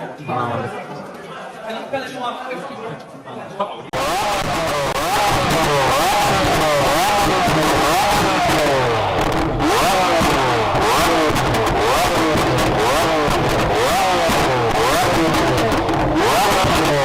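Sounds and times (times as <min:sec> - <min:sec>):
car engine revving: 0:03.9 - 0:17.0
exhaust crackles: 0:03.9 - 0:17.0.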